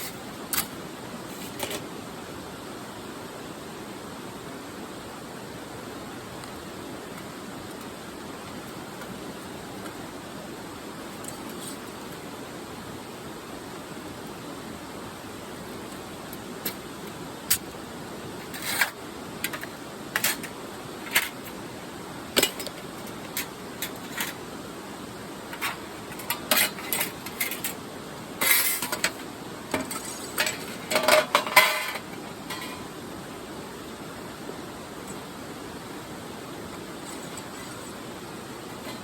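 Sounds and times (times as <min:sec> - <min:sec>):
steady background hiss: 0:00.0 - 0:39.0
metal parts clinking and rattling: 0:22.4 - 0:24.4, 0:25.5 - 0:27.8, 0:28.4 - 0:32.9.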